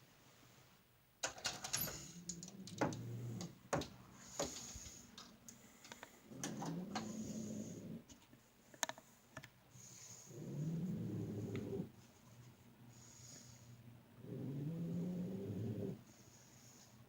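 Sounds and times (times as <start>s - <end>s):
dog snoring with low rattle: 1.9s - 3.6s, 6.1s - 8.1s, 9.9s - 12.0s, 14.2s - 16.0s.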